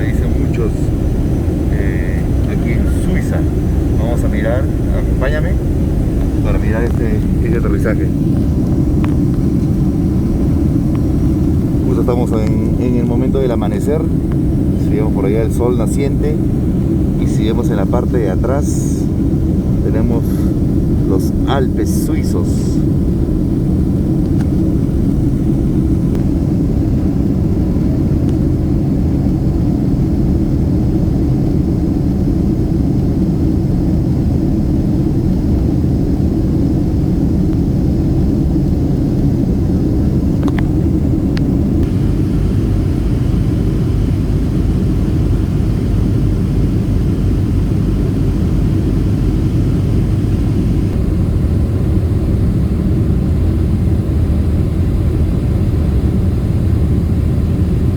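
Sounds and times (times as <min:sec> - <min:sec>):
jet cabin engine roar: 0:00.0 - 0:57.9.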